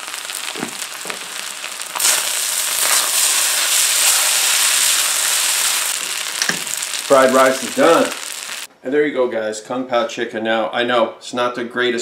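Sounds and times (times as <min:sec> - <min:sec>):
rice sizzling in a wok: 0:00.0 - 0:08.7.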